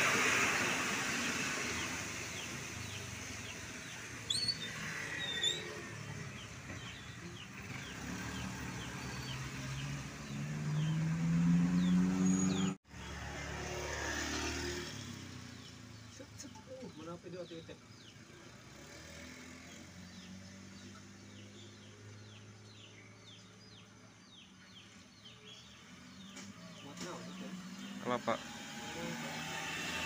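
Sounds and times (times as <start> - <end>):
truck engine approaching: 0.0 - 23.8
bird chirping: 1.8 - 13.2, 15.0 - 29.5.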